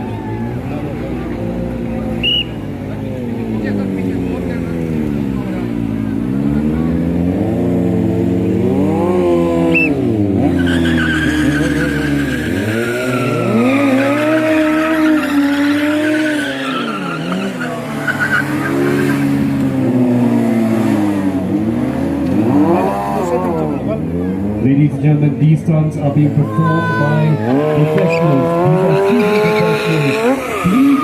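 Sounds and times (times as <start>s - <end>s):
motorcycle engines revving: 0.0s - 31.0s
tyre squeal: 9.7s - 19.3s, 27.5s - 31.0s.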